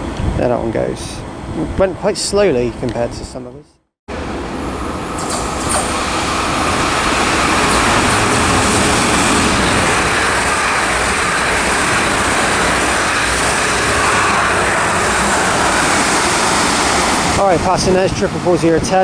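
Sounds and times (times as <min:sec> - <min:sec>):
train passing at speed: 0:04.1 - 0:19.0.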